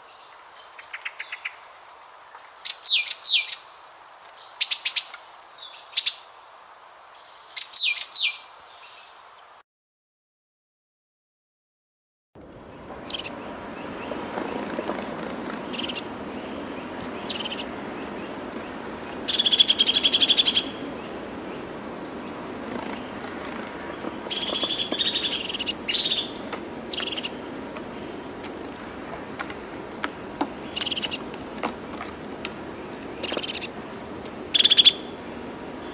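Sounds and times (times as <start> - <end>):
birds chirping: 0.0 - 6.2, 12.4 - 35.9
buzzy bird trills: 12.4 - 28.7, 29.4 - 31.6, 32.8 - 35.9
steady background noise: 12.6 - 35.9.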